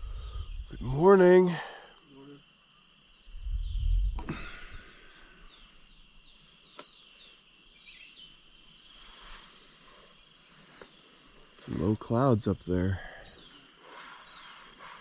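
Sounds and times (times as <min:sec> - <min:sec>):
low rumble on microphone: 0:00.0 - 0:00.9, 0:03.3 - 0:04.8
bird chirps: 0:05.4 - 0:09.3.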